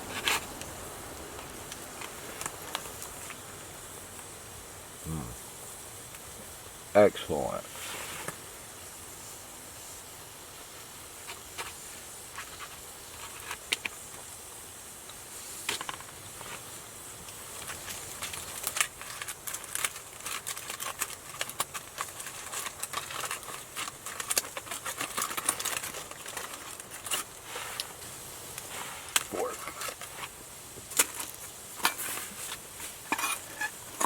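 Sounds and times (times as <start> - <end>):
gas stove hiss: 0.0 - 34.0
food sizzling in a pan: 7.6 - 34.0.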